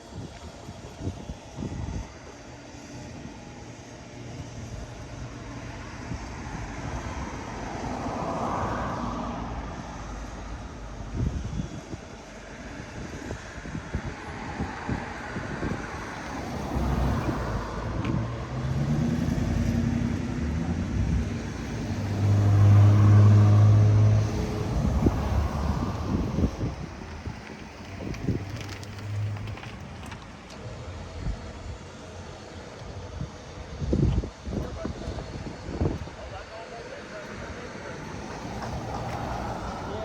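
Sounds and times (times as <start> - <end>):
road noise: 0.0 - 40.0
car engine revving: 16.2 - 30.2.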